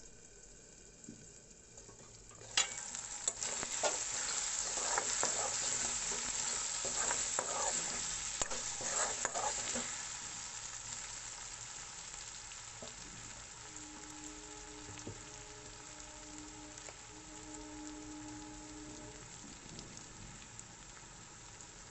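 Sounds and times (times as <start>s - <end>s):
potatoes sizzling in oil: 0.0s - 21.9s
spatula scraping a pan: 2.3s - 10.2s.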